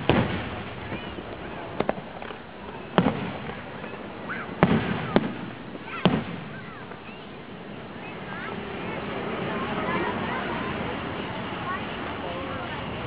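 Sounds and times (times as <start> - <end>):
firework shells booming: 0.0 - 8.4.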